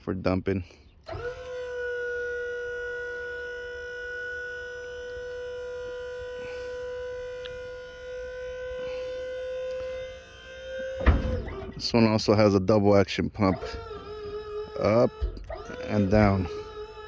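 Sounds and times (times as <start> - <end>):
hydraulic pump whining: 0.7 - 17.0.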